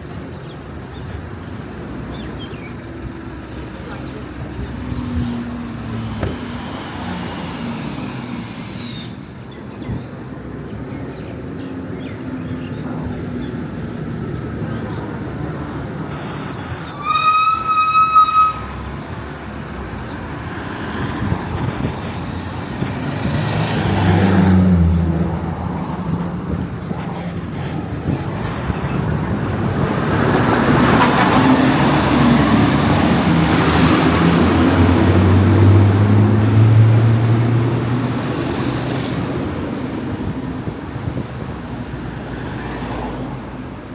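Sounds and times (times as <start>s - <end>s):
street traffic: 0.0s - 43.9s
car horn tooting: 16.7s - 18.9s.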